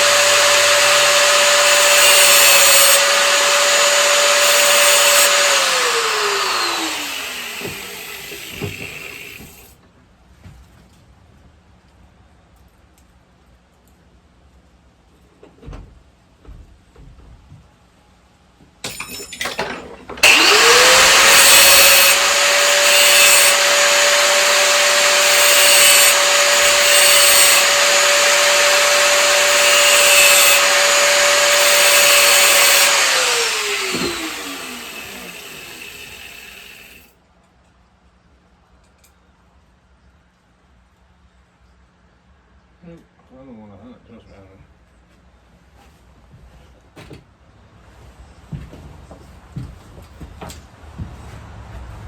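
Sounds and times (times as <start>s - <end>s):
power tool motor running: 0.0s - 9.7s, 20.2s - 37.1s.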